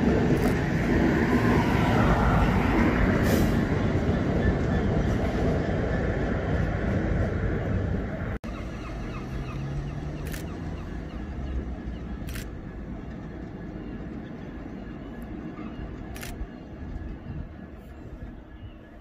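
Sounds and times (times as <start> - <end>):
diesel locomotive engine rumble: 0.0 - 19.0
passing train rumble: 0.0 - 19.0.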